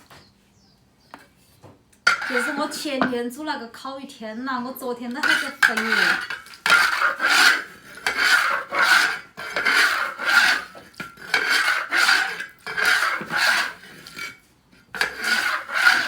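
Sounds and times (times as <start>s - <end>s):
rhythmic rasping scraping: 2.1s - 2.8s, 5.1s - 14.4s, 15.0s - 16.0s.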